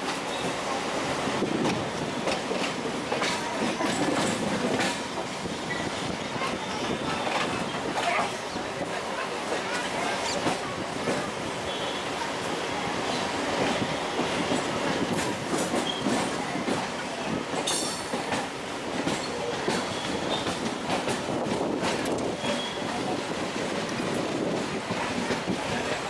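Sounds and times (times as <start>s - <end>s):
electric train rumbling on track: 0.0s - 26.0s
wheels clicking on rails: 1.4s - 8.4s, 13.1s - 26.0s.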